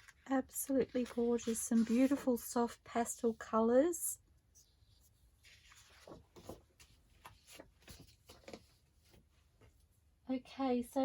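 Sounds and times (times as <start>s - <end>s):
paper sheets rustling and sliding: 0.0s - 2.7s, 5.0s - 9.3s.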